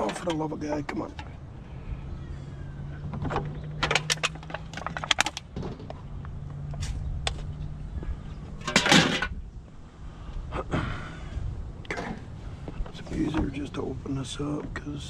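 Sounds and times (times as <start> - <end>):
handling clicks and rattles: 0.0 - 1.4, 3.0 - 7.7, 8.6 - 9.4.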